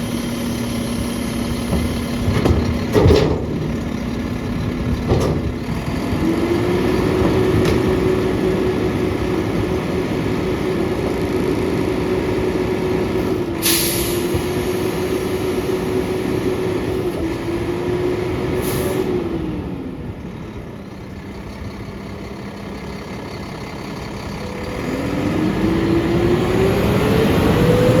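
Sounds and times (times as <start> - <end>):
garbage packer compacting: 0.0 - 21.4
truck diesel engine revving: 0.0 - 28.0
air hissing: 13.6 - 15.3.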